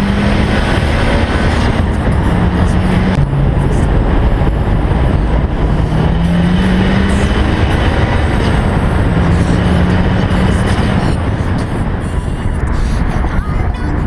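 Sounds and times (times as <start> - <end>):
car engine and exhaust: 0.0 - 14.0
road noise: 0.0 - 14.0.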